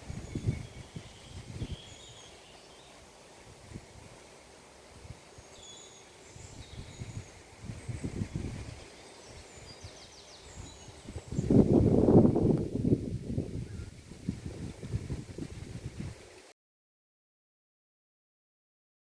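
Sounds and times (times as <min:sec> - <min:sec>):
bird trill: 0:00.0 - 0:03.0
small birds chirping: 0:00.0 - 0:03.6, 0:05.1 - 0:11.8.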